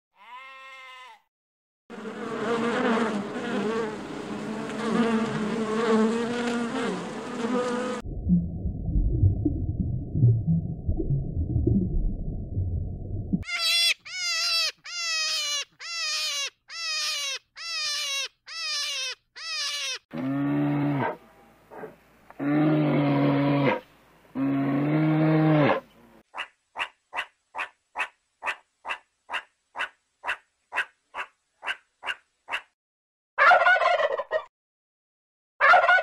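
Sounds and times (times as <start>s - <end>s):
short falling animal calls: 13.4s - 20.0s.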